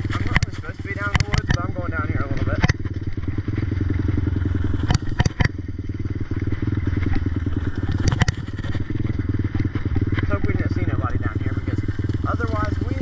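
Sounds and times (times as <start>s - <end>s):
atv engine pulsing: 0.0s - 13.0s
sharp knocks: 1.1s - 1.6s, 4.8s - 5.6s.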